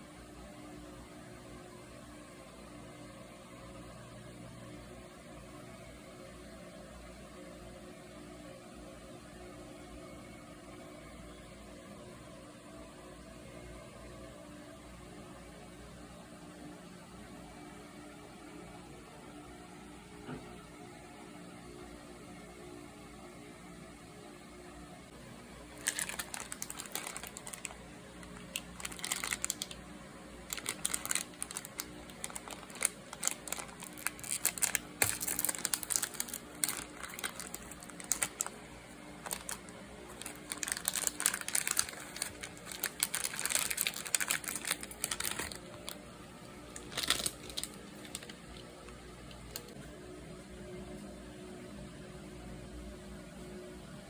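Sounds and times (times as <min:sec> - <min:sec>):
packaging crinkling: 0:25.7 - 0:29.8, 0:30.5 - 0:38.6, 0:39.2 - 0:49.8.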